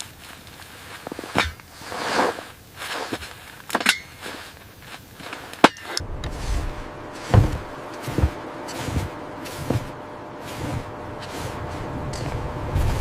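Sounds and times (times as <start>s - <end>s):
footsteps crunching in snow: 0.0s - 13.0s
dull thump: 6.0s - 10.0s
low rumble: 6.0s - 13.0s.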